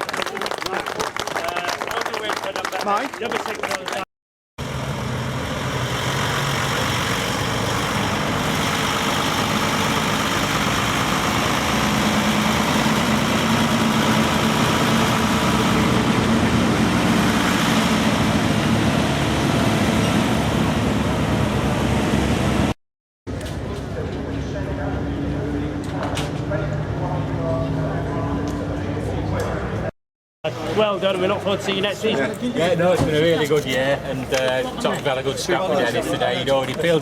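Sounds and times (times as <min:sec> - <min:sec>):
car engine running: 0:04.6 - 0:22.7.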